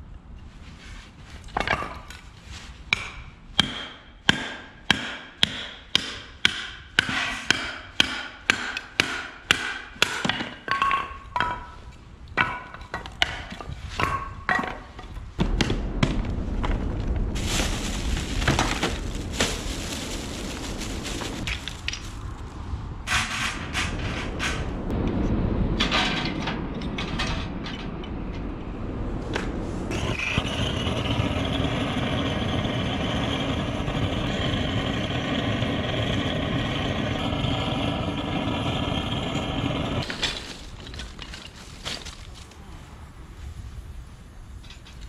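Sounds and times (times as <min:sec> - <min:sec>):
steady rushing noise: 0:14.9 - 0:40.0.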